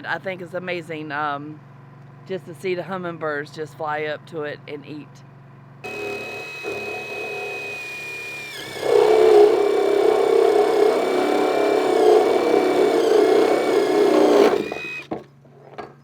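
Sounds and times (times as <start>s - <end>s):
power drill motor whirring: 5.8s - 15.2s.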